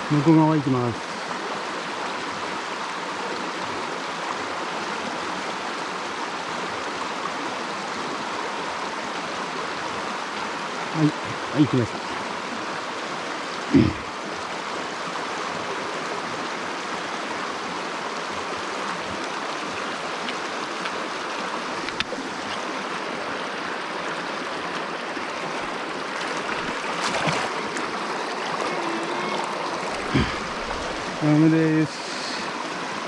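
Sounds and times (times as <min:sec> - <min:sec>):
stream water over rocks: 0:00.0 - 0:33.0.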